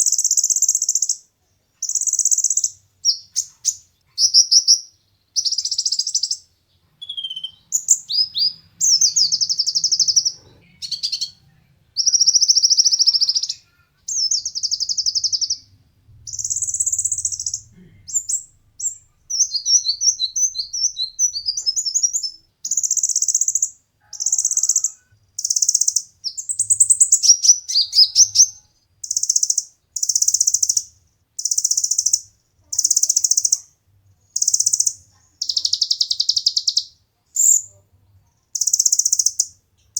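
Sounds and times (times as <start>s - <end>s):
sunbird singing trilled phrases: 7.0s - 11.4s, 12.0s - 15.7s, 16.3s - 33.7s, 34.4s - 37.7s.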